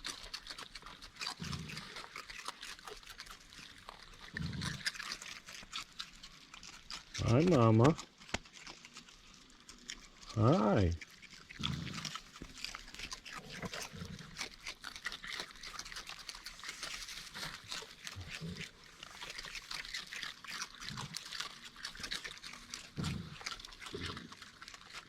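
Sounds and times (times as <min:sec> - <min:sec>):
raccoons crunching food: 0:00.0 - 0:25.0.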